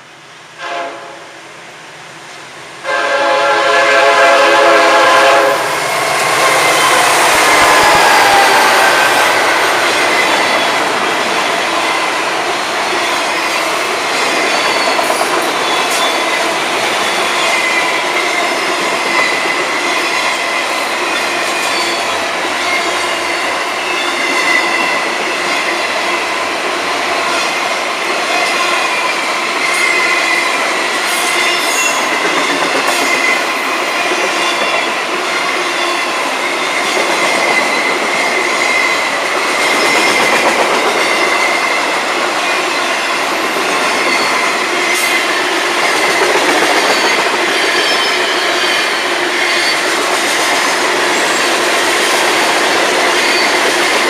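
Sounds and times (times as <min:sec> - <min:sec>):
train wheels rumbling and clattering: 0:03.6 - 0:54.0.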